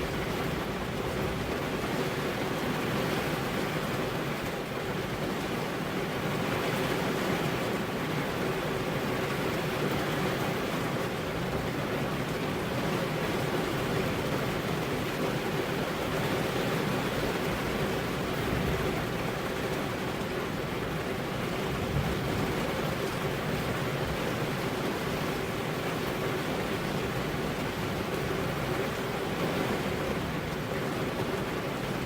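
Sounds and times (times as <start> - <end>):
steady rainfall: 0.0 - 32.0.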